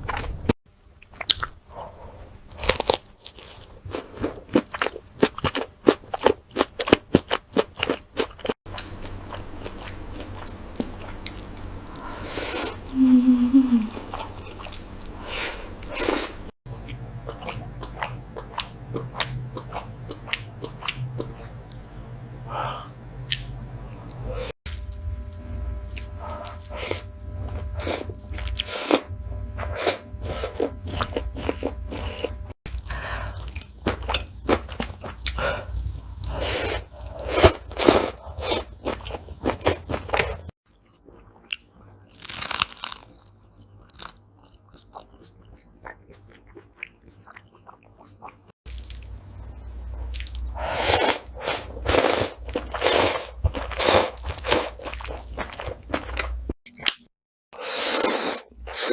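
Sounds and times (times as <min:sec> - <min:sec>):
chewing and crunching food: 0:00.0 - 0:01.9, 0:02.5 - 0:12.8, 0:13.9 - 0:21.9, 0:30.2 - 0:57.1
low steady hum: 0:08.7 - 0:39.4, 0:48.7 - 0:54.4.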